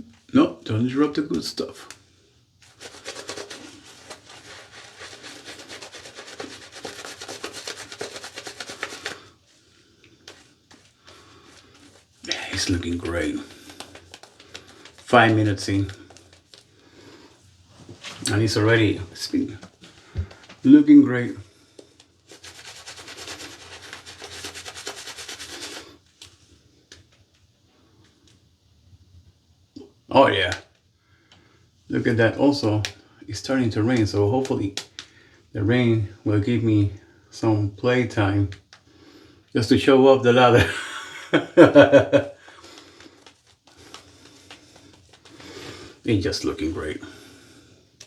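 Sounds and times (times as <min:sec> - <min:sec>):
shaving brush wet brushing strokes: 0:02.6 - 0:16.7, 0:21.8 - 0:26.4, 0:42.8 - 0:47.3.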